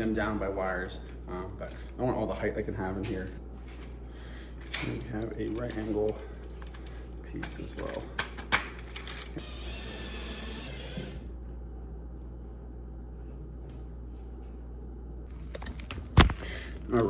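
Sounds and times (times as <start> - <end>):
drill whining: 9.4 - 11.2.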